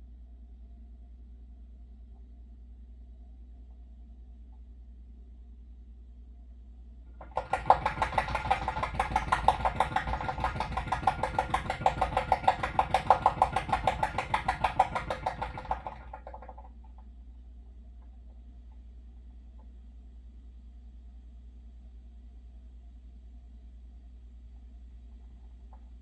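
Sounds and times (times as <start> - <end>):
low steady hum: 0.0 - 26.0
water heater pipe chattering: 7.2 - 16.9.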